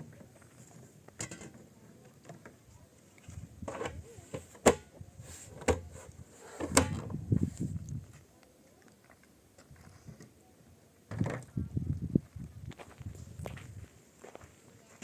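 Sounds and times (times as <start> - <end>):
scuffing and handling noises: 12.0 - 15.0.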